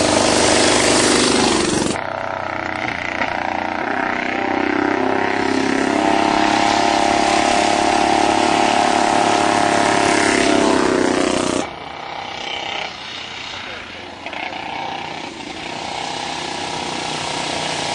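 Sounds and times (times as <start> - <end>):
motorcycle engine at high revs: 0.0 - 17.9.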